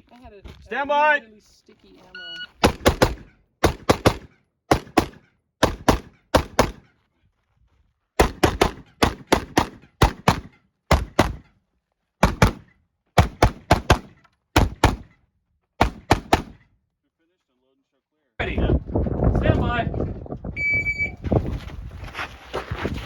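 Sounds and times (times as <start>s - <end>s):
rifle shots in rapid strings: 2.6s - 6.8s, 15.8s - 16.6s.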